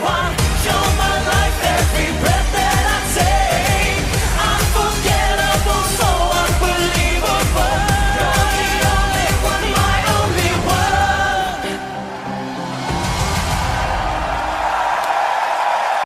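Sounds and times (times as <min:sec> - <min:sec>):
pop song with driving beat: 0:00.0 - 0:12.2
person singing: 0:00.0 - 0:12.9.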